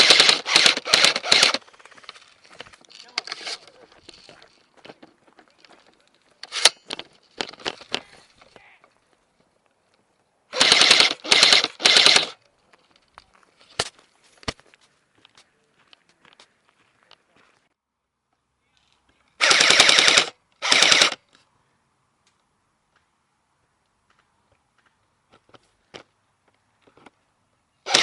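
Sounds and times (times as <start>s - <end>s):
airsoft gun firing bursts: 0.0s - 1.9s, 10.5s - 12.4s, 19.4s - 21.2s.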